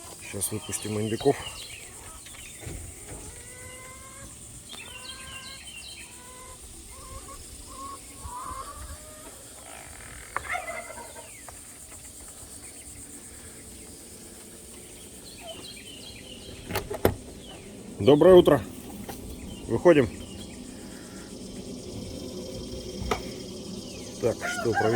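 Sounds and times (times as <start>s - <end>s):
high insect hum: 0.0s - 24.9s
poultry clucking: 0.0s - 24.9s.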